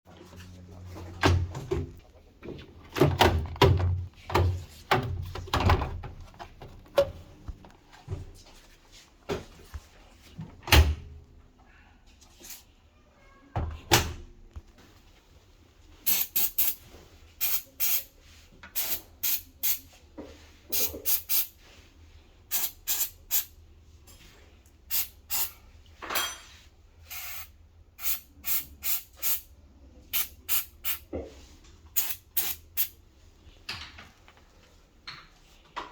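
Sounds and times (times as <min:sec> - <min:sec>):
parts knocking and clattering: 0:01.0 - 0:07.7, 0:33.6 - 0:34.4.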